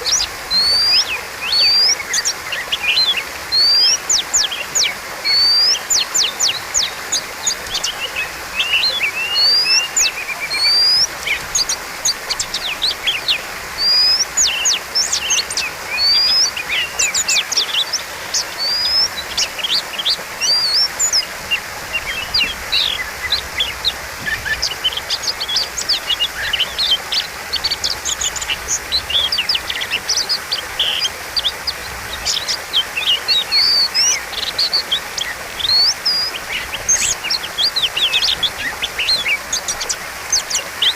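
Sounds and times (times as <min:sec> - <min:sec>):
bird singing varied whistles: 0:00.1 - 0:02.2, 0:04.8 - 0:06.9, 0:20.4 - 0:21.2.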